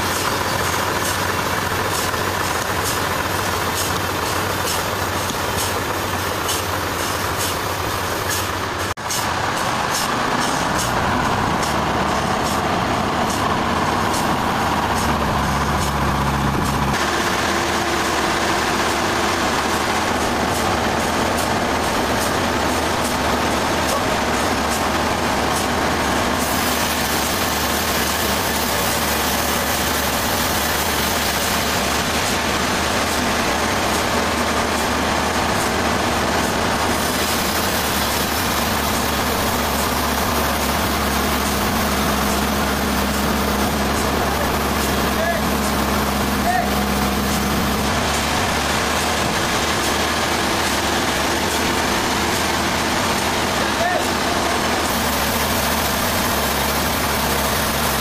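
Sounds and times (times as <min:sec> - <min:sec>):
sawmill machinery droning: 0:00.0 - 0:58.0.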